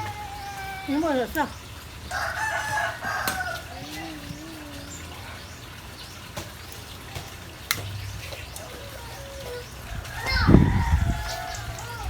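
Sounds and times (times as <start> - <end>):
rooster crowing: 2.1 - 4.0, 8.8 - 12.0.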